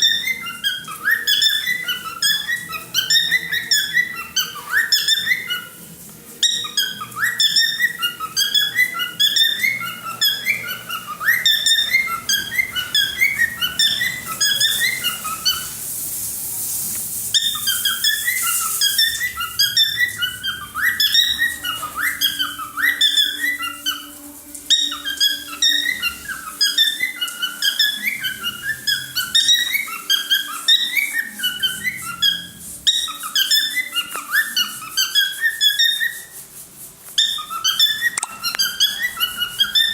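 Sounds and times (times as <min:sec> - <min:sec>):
cockatiel whistling: 0:00.0 - 0:05.8, 0:06.4 - 0:16.1, 0:16.9 - 0:36.4, 0:37.1 - 0:39.9
hissy noise: 0:14.1 - 0:19.5.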